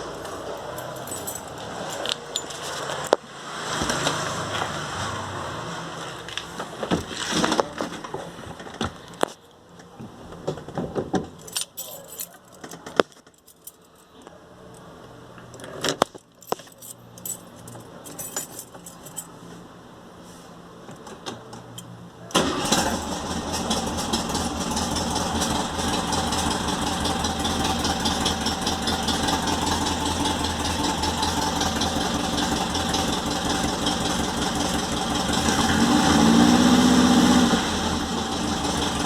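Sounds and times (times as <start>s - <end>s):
keys jangling: 0.6s - 3.0s, 11.4s - 14.0s, 16.3s - 19.3s
handling clicks and knocks: 15.6s - 19.2s.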